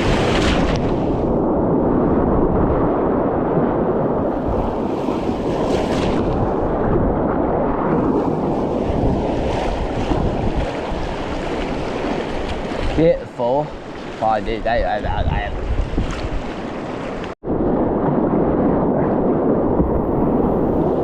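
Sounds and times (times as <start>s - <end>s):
wind buffeting microphone: 0.0s - 21.0s
water splashing: 7.9s - 17.4s.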